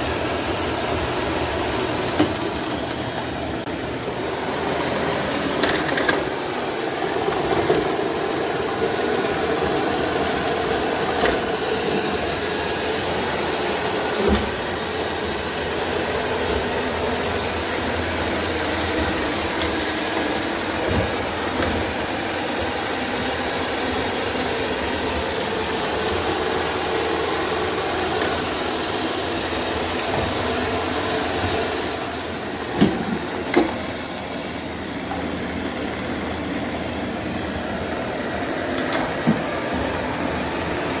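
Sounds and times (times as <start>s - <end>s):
robot vacuum running: 0.0s - 41.0s.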